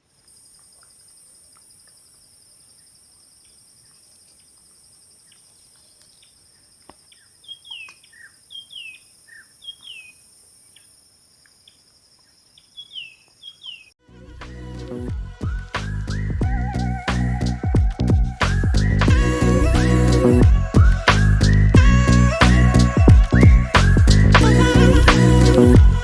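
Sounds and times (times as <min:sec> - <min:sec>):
insects trilling: 0:00.0 - 0:14.0
birds chirping: 0:00.3 - 0:14.0
music: 0:14.0 - 0:26.0.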